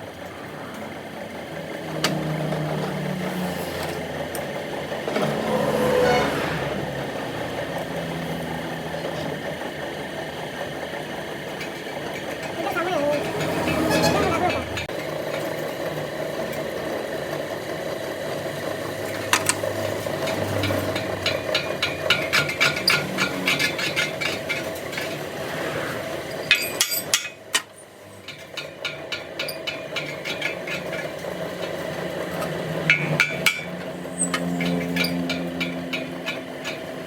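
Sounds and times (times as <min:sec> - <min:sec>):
hammer striking metal: 0:26.5 - 0:27.7, 0:32.8 - 0:37.0.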